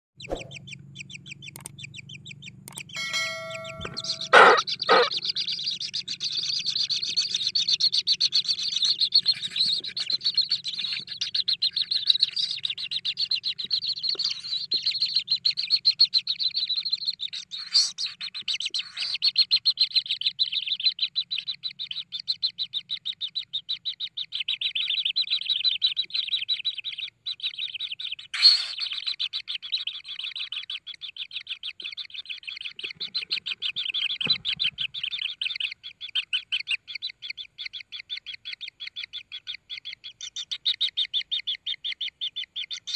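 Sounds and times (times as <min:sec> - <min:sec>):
kingfisher chicks begging calls: 0:00.2 - 0:42.9.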